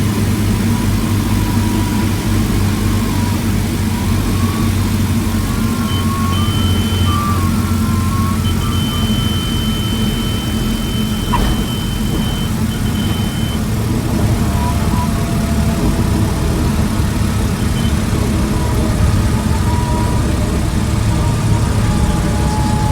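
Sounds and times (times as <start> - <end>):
light airplane engine running: 0.0 - 22.9
thin high tone: 4.0 - 13.7.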